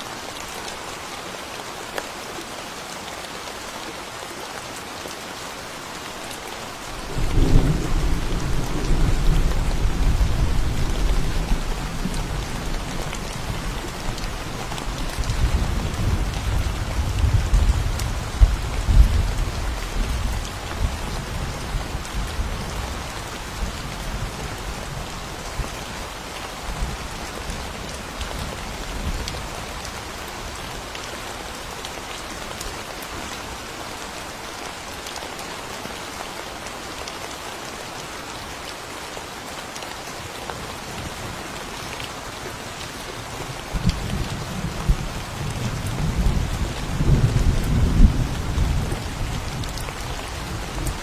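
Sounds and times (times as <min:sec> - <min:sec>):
steady rain falling: 0:00.0 - 0:51.0
low rumble of thunder: 0:07.1 - 0:25.7, 0:43.7 - 0:51.0.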